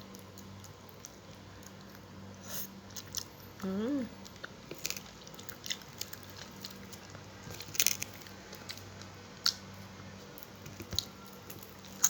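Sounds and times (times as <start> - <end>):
person chewing and crunching: 4.2 - 12.0.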